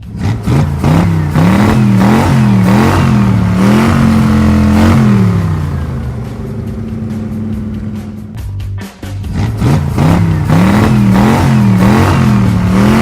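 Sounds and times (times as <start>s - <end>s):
cartoon truck engine revving: 0.0s - 8.4s, 9.2s - 13.0s.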